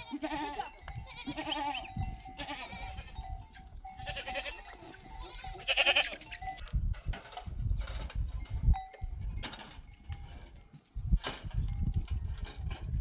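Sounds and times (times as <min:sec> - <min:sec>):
goats bleating: 0:00.0 - 0:03.3, 0:04.0 - 0:06.3.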